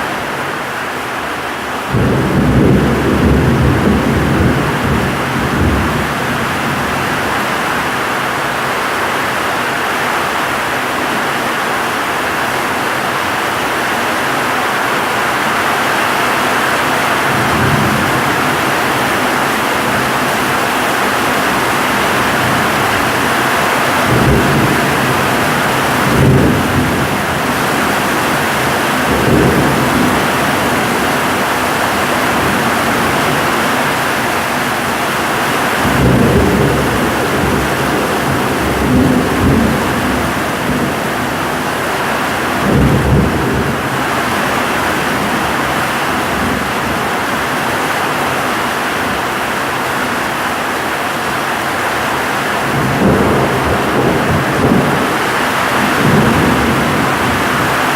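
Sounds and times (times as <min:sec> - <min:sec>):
heavy rain hissing: 0:00.0 - 0:57.9
strong wind: 0:00.0 - 0:57.9
thunder rumbling: 0:01.8 - 0:08.6, 0:16.2 - 0:48.4, 0:51.8 - 0:57.9.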